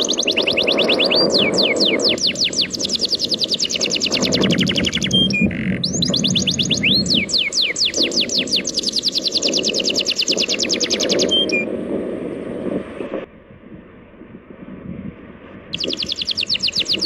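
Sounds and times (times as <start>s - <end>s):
sea waves rushing: 0.0s - 5.1s, 6.6s - 13.3s
bird whistling falling notes: 0.0s - 11.7s, 15.8s - 17.0s.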